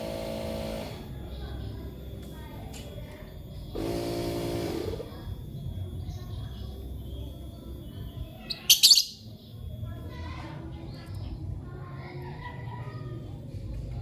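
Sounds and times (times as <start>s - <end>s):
faint bird chirps: 5.4s - 9.9s
bird shrill harsh chirp: 8.4s - 9.3s.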